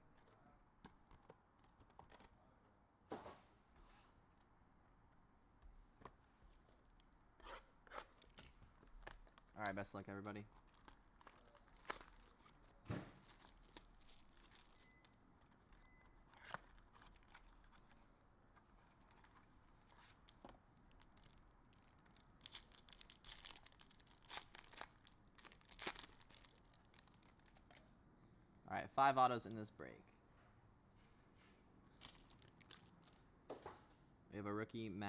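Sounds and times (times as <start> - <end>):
packaging crinkling and tearing: 8.1 - 18.1, 18.8 - 27.9, 32.0 - 33.2.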